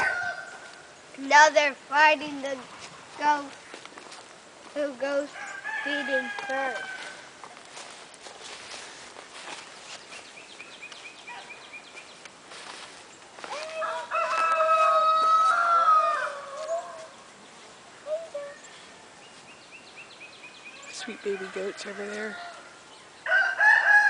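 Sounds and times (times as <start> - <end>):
rooster crowing: 0.0 - 0.9, 5.3 - 7.4, 13.6 - 17.1, 20.8 - 24.0
faint high bird chirping: 9.9 - 12.3, 16.5 - 21.4.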